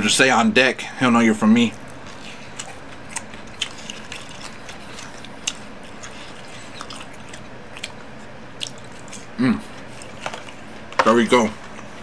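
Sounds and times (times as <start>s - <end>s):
person chewing crunchy food: 1.6s - 11.0s.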